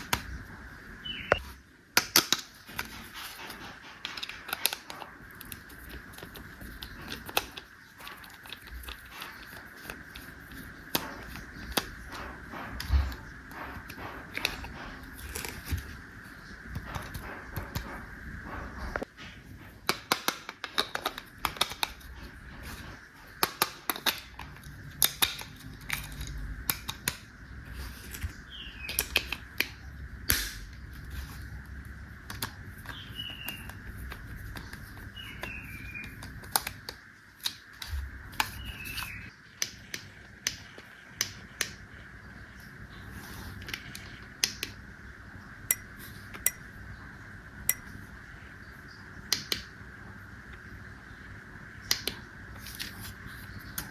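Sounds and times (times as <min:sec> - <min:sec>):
plastic toy parts clicking: 0:19.8 - 0:22.1.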